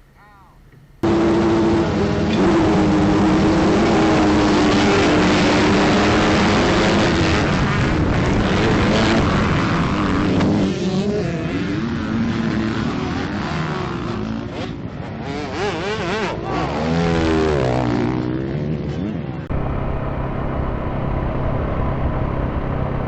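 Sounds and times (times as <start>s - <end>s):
heavy rushing noise: 1.0s - 10.8s, 19.4s - 23.0s
dirt bike engine running: 1.0s - 23.0s.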